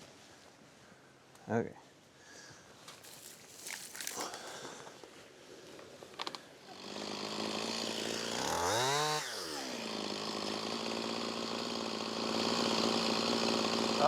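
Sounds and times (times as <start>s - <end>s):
chainsaw running and revving: 6.6s - 14.0s.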